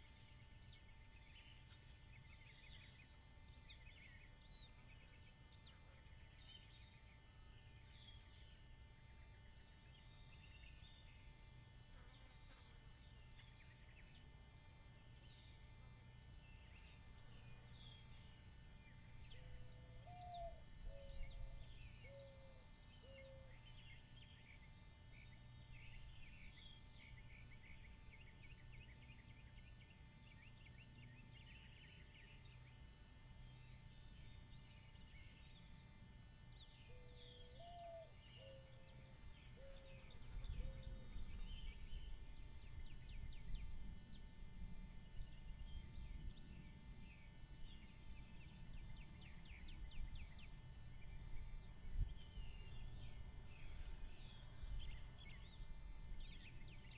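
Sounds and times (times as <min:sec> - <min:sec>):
low steady hum: 0:00.0 - 0:56.9
birds chirping: 0:09.8 - 0:35.7
faint bird chirps: 0:16.4 - 0:35.7, 0:36.4 - 0:56.9.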